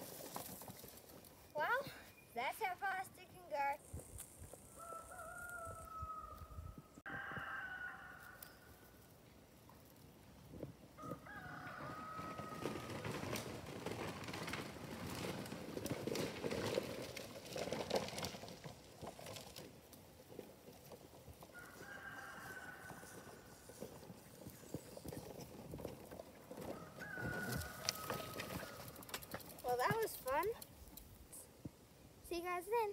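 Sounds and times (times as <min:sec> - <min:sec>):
rustling noise: 0:00.0 - 0:01.7, 0:08.2 - 0:31.4.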